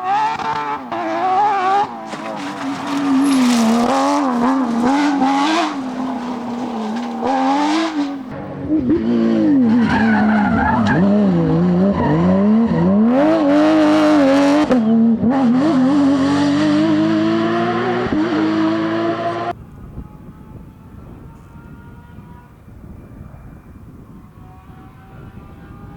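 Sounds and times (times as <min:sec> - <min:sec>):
rally car engine revving: 0:00.0 - 0:25.9
tyres on gravel: 0:00.2 - 0:08.3.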